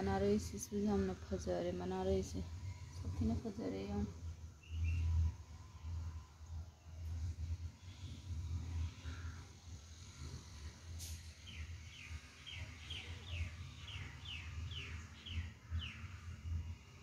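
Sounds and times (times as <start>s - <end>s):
bird chirping: 4.6s - 5.3s, 11.4s - 16.6s.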